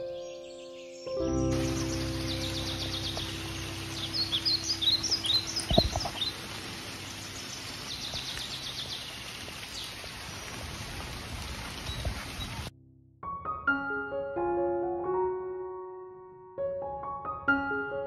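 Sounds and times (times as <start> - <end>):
wild birds chirping: 0.0 - 12.7
steady outdoor hiss: 0.2 - 12.7.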